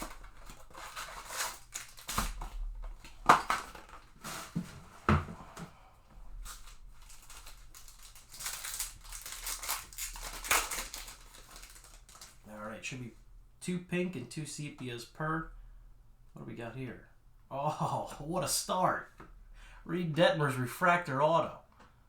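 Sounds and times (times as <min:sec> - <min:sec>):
wrapping rustling and tearing: 0:00.0 - 0:04.9, 0:06.3 - 0:12.5.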